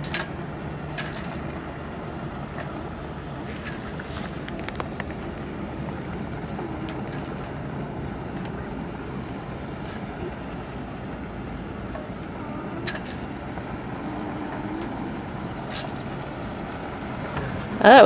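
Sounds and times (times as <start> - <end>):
boat engine rumbling: 0.0 - 18.0.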